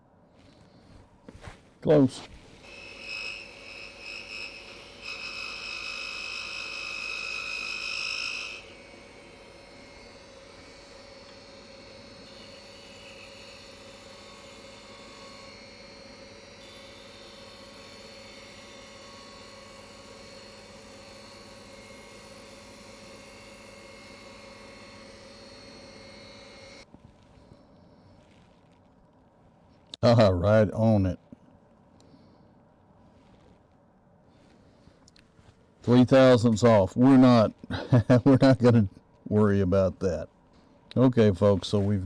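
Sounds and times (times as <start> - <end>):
turning tool cutting wood: 1.9 - 26.9, 35.8 - 38.5
wood lathe motor humming: 2.6 - 27.3.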